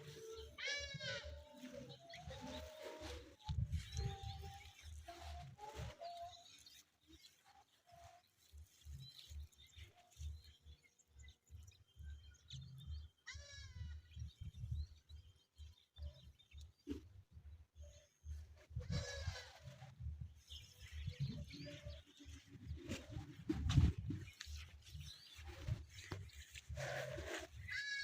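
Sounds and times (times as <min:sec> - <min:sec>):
goat bleating: 0:00.0 - 0:01.9, 0:13.3 - 0:14.0, 0:18.8 - 0:19.7, 0:27.6 - 0:28.0.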